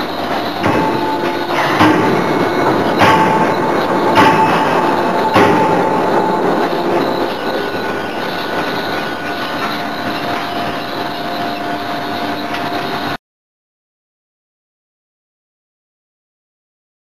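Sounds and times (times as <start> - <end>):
faint hum tones: 0.0 - 13.2
industrial machinery drone: 0.0 - 13.2.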